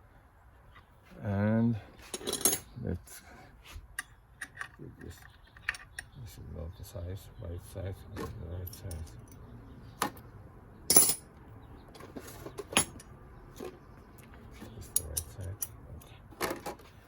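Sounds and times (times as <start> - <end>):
metal tools clinking: 2.1 - 2.7, 8.2 - 9.5, 10.9 - 11.3, 12.1 - 13.7, 14.6 - 16.8.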